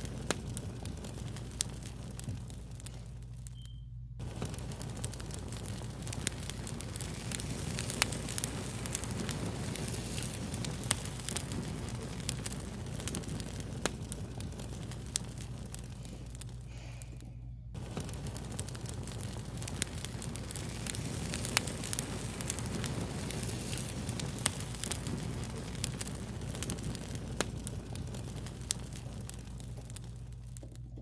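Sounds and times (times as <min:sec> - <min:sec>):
low rumble: 0:00.0 - 0:31.0
wood fire crackling: 0:00.0 - 0:31.0.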